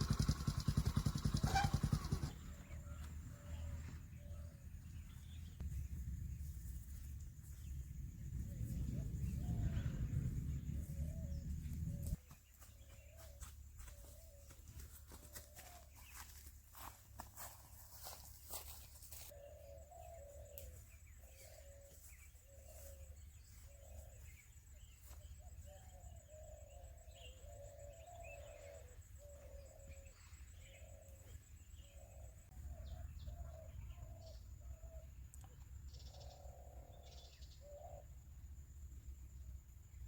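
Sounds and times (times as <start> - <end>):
steady low hum: 2.0 - 12.2
bird calling in low notes: 8.4 - 12.2, 19.4 - 35.2.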